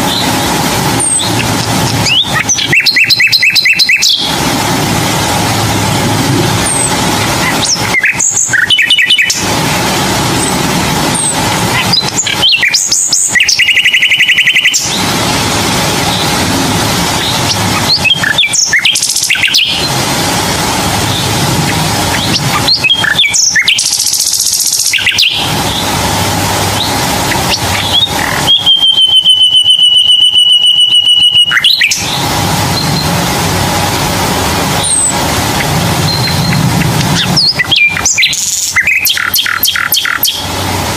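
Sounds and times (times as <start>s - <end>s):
fast buzzy bird trill: 0.0s - 40.9s
steady background noise: 0.0s - 40.9s
bird chirps and calls: 1.0s - 4.4s, 6.6s - 9.5s, 11.2s - 15.1s, 17.2s - 19.9s, 21.1s - 25.9s, 26.8s - 32.2s, 34.8s - 40.5s.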